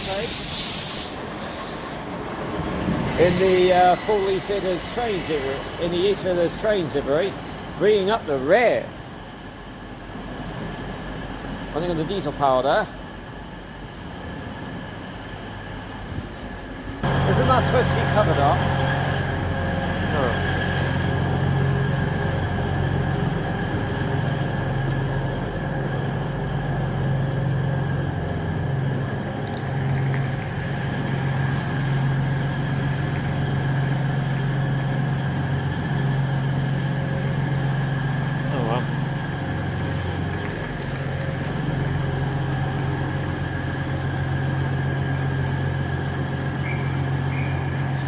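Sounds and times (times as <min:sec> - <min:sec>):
diesel train engine idling: 0:00.0 - 0:48.0
thin steady whine: 0:00.0 - 0:48.0.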